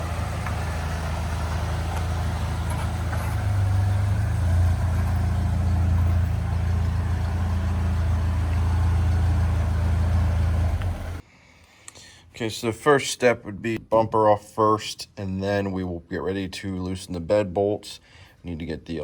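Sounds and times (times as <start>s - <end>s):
engine idling: 0.0s - 11.2s.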